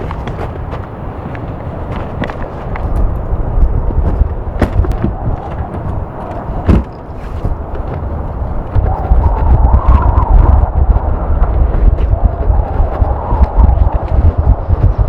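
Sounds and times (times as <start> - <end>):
gusty wind buffeting microphone: 0.0 - 15.0
faint wavering howl: 1.1 - 15.0
sharp knocks: 4.1 - 8.0.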